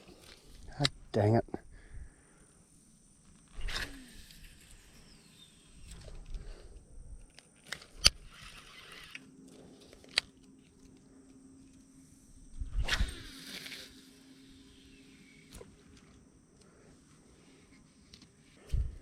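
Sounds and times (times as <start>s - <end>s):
faint high hum: 0.0s - 19.0s
fishing reel clicks: 3.5s - 9.3s, 12.7s - 15.7s.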